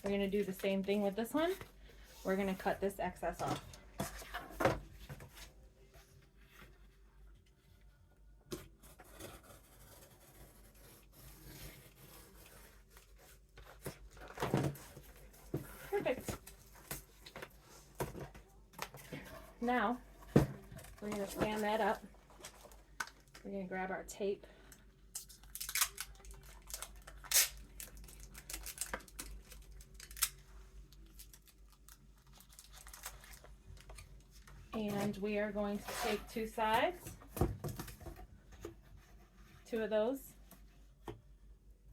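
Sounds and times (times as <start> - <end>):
packing tape ripping off roll: 25.1 - 30.4.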